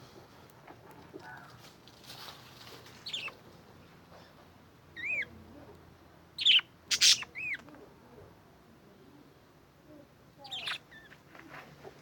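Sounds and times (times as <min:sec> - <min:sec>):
budgerigars chirping: 0:03.0 - 0:03.4, 0:05.0 - 0:05.3, 0:06.4 - 0:07.6, 0:10.4 - 0:11.1.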